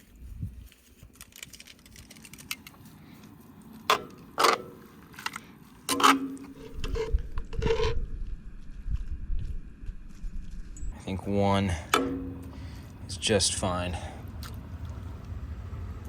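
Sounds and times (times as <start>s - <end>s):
low rumble: 6.5s - 11.0s, 12.0s - 16.0s.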